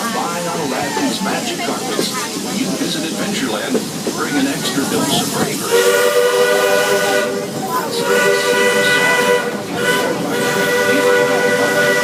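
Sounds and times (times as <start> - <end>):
hiss and rumble of moving train: 0.0 - 12.0
steam locomotive chime whistle: 5.6 - 12.0.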